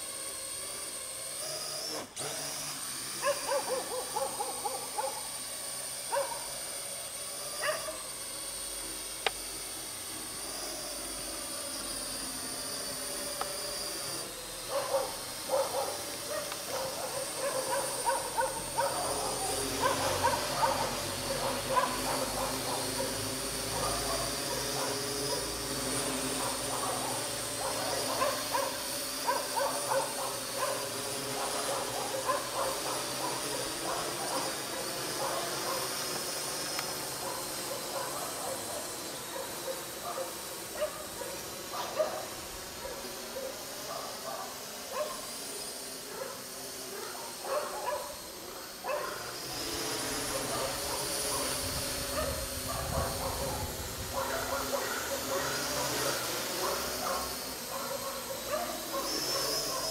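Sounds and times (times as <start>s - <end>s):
drone motors whining: 0.0s - 59.9s
dog barking: 3.2s - 5.3s, 6.1s - 6.5s, 7.6s - 8.0s, 14.7s - 25.5s, 26.4s - 35.9s, 37.2s - 45.3s, 46.1s - 48.2s, 48.8s - 49.3s, 50.3s - 59.9s.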